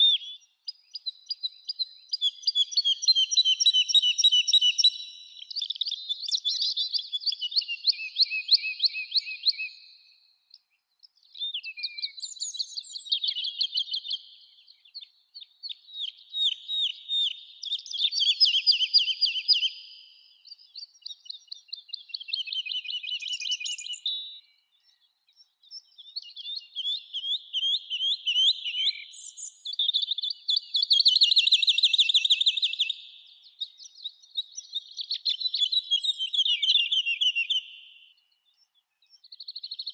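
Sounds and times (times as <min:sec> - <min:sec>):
songbird trilling: 0:11.4 - 0:14.2, 0:21.0 - 0:24.4, 0:25.9 - 0:37.9.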